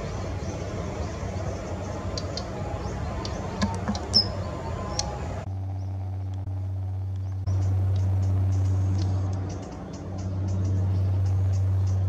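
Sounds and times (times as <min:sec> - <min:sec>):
high bird calls: 0:00.0 - 0:06.0
outdoor background noise: 0:00.0 - 0:12.0
steady low hum: 0:00.0 - 0:12.0.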